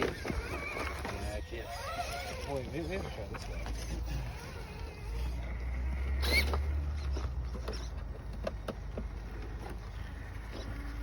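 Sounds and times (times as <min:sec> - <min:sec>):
electric motor whine: 0:00.0 - 0:07.4.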